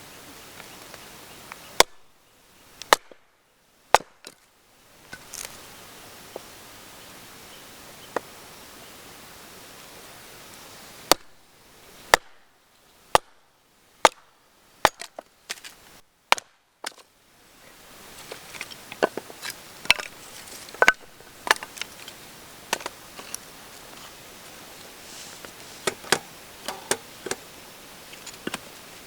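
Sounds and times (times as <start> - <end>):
wood fire crackling: 17.7 - 29.0.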